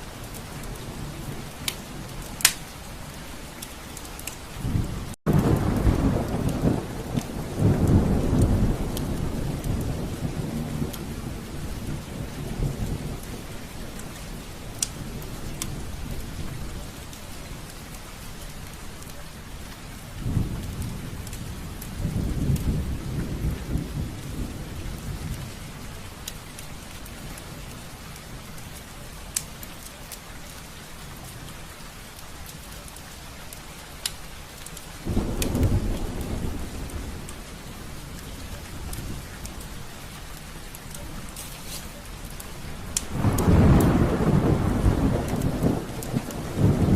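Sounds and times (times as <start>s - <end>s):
rain on window glass: 0.0s - 46.9s
thunder rumbling: 4.6s - 17.6s, 20.0s - 26.5s, 35.0s - 41.4s, 42.0s - 46.9s.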